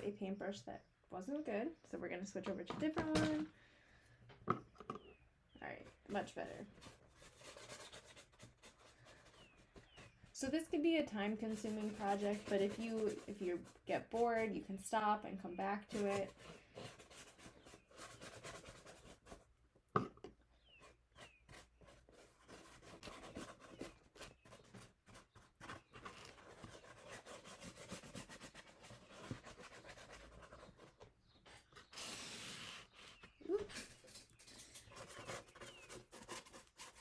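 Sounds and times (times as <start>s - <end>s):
paintbrush rubbing on cardboard: 6.0s - 14.6s, 15.8s - 19.5s, 20.6s - 33.4s, 35.0s - 37.0s.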